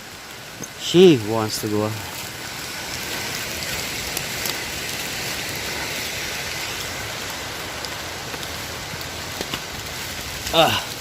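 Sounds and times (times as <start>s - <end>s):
rain: 0.0s - 11.0s
waterfall rushing: 0.4s - 11.0s.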